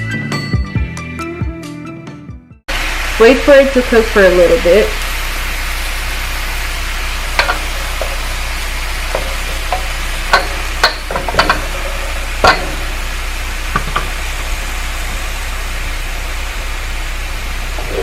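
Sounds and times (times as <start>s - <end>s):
chicken sizzling in hot oil: 2.7s - 18.0s
utensil knocking against pan: 7.4s - 8.4s, 9.0s - 13.0s, 13.7s - 14.2s.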